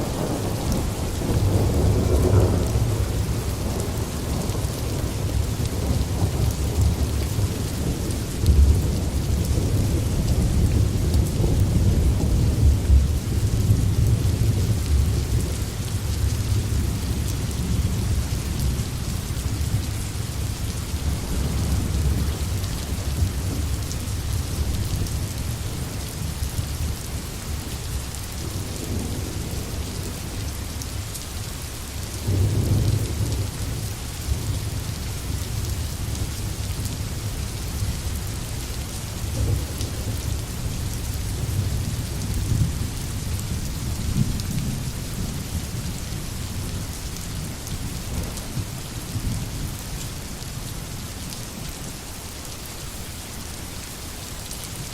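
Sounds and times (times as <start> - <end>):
distant thunder rumbling: 0.0 - 15.6
heavy rain hissing: 0.0 - 54.9.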